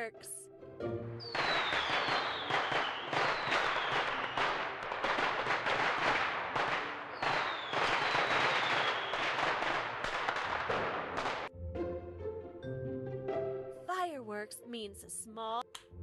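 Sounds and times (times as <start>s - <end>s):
falling firework whistle: 1.2s - 5.8s, 7.1s - 9.6s
fireworks crackling and popping: 1.2s - 11.5s.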